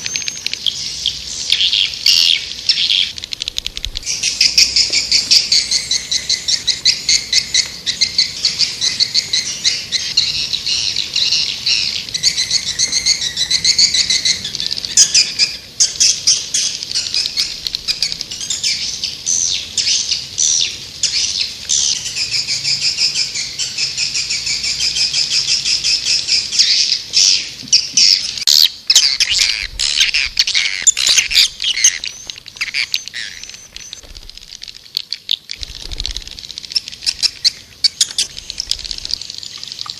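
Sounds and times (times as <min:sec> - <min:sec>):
sharp clicks: 0:03.1 - 0:04.1
swiftlets twittering: 0:29.0 - 0:34.8.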